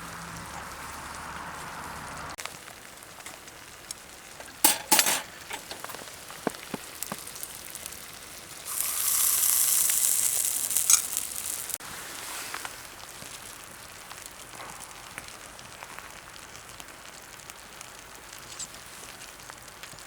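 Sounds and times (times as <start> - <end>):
sizzling hiss: 0.0 - 20.0
metal utensil clinking on pot: 4.4 - 6.0.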